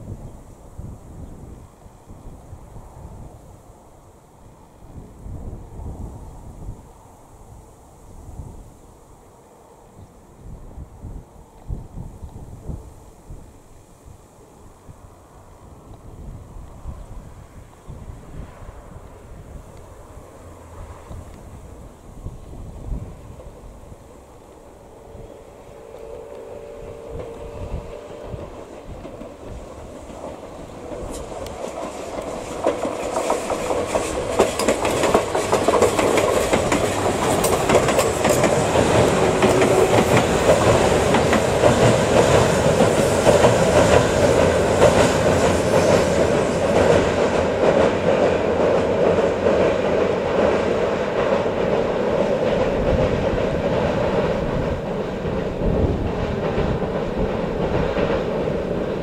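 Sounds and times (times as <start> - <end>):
rumble from steel bridge: 14.5 - 59.0
train wheels clattering over joints: 27.0 - 59.0.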